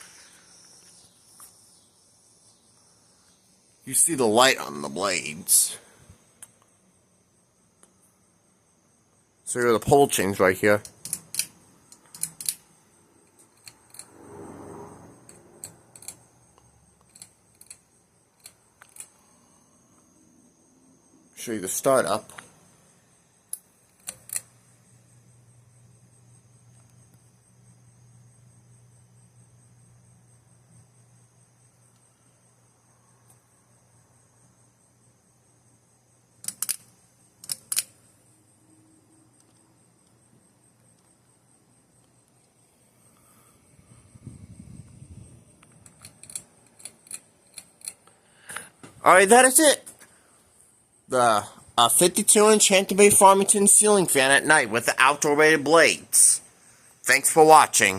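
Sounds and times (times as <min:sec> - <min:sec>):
crickets chirping: 0:00.0 - 0:57.9
fan pull chains clicking: 0:10.8 - 0:12.6, 0:15.3 - 0:16.2, 0:23.9 - 0:24.5, 0:36.4 - 0:37.9, 0:45.7 - 0:48.1
low hum: 0:13.6 - 0:16.6.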